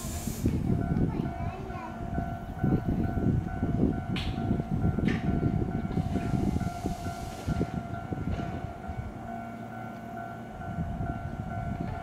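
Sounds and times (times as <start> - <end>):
air release hiss: 0.0 - 0.6, 6.0 - 7.8
electric train whine: 0.0 - 1.3, 2.0 - 12.0.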